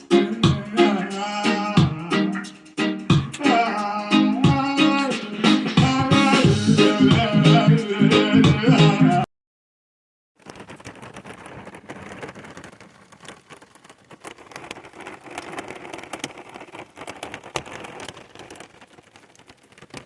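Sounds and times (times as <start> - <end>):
hard rain drumming on cabin roof: 10.4 - 20.0.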